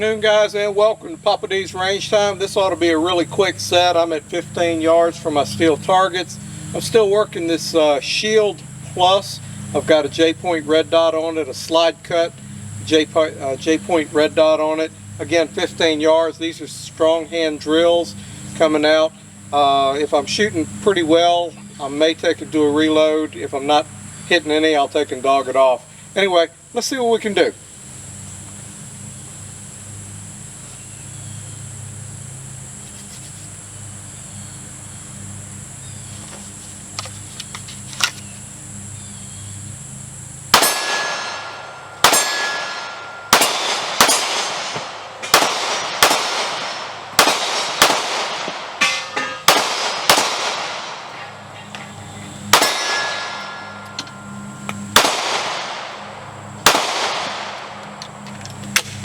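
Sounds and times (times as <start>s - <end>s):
insect chirring: 0.0s - 59.0s
pistol shots: 40.5s - 53.9s, 54.9s - 58.0s
steel targets clanging: 40.6s - 46.9s, 48.7s - 50.1s, 51.1s - 55.1s.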